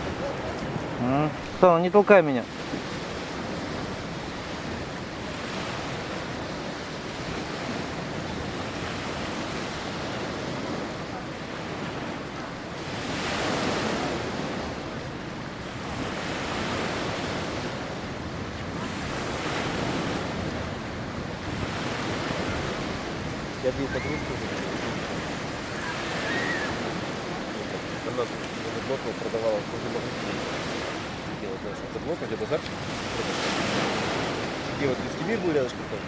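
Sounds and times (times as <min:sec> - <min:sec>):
wind on microphone: 0:00.0 - 0:01.6, 0:02.5 - 0:28.9
sea waves washing ashore: 0:00.0 - 0:36.0.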